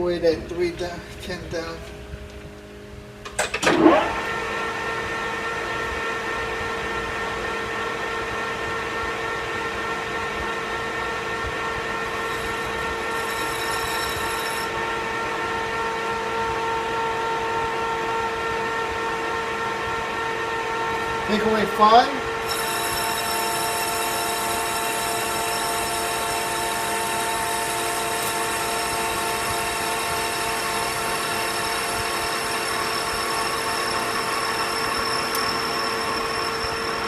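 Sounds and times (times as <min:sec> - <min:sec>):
metal lathe motor humming: 0:09.0 - 0:17.2, 0:20.8 - 0:37.0.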